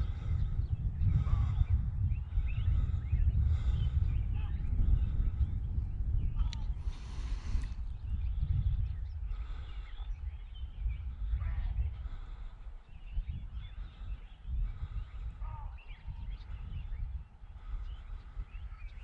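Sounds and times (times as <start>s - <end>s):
wind buffeting microphone: 0.0s - 19.0s
bird chirps and calls: 6.2s - 19.0s.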